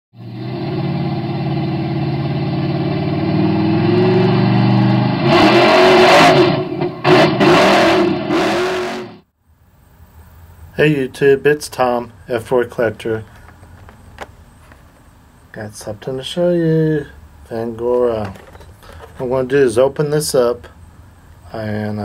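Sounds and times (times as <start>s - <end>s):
engine running and revving: 0.2s - 9.2s.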